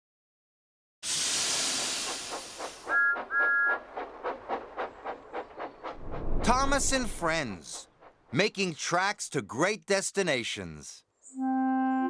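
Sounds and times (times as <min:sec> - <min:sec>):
steam blast: 0:01.0 - 0:08.4
steam locomotive chuffing: 0:01.0 - 0:09.0
train whistle toots: 0:02.9 - 0:03.8, 0:11.3 - 0:12.0.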